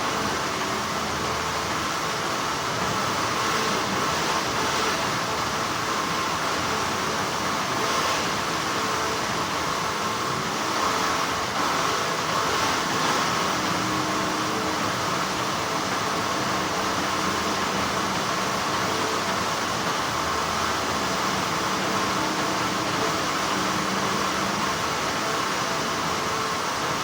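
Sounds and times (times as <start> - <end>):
factory machinery humming: 0.0 - 27.0.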